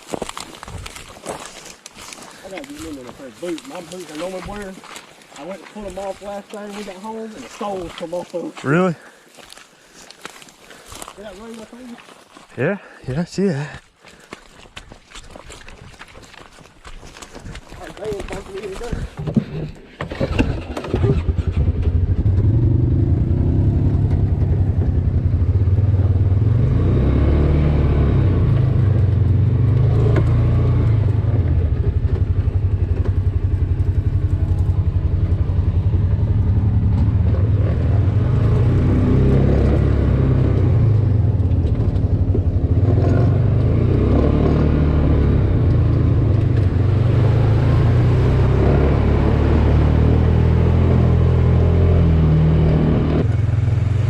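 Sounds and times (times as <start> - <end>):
vehicle engine running: 20.4 - 54.0.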